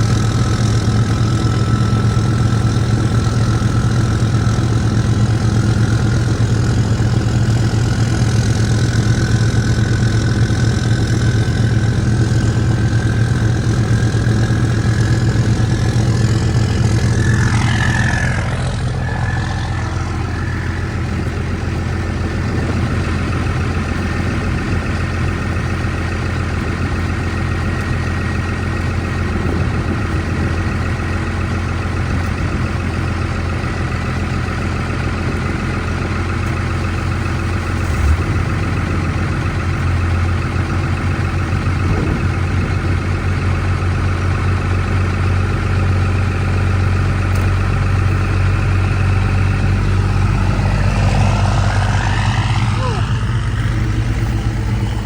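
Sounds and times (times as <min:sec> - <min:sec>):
old engine idling: 0:00.0 - 0:55.0.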